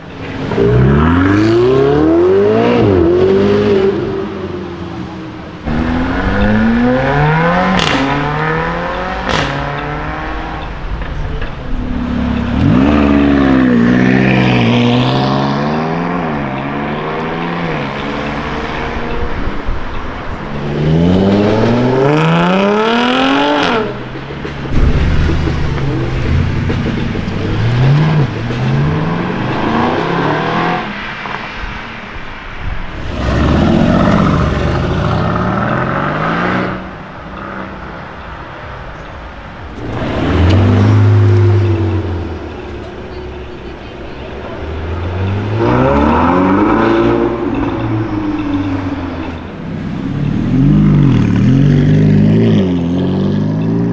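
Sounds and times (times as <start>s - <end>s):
car engines revving hard: 0.0s - 53.9s.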